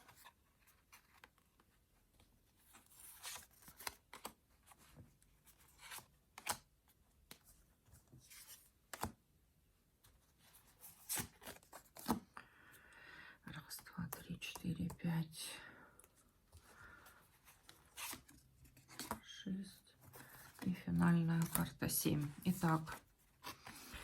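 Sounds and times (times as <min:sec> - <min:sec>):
cards being shuffled: 0:02.7 - 0:04.8, 0:05.4 - 0:07.6, 0:08.2 - 0:09.2, 0:10.7 - 0:12.3, 0:17.4 - 0:19.3.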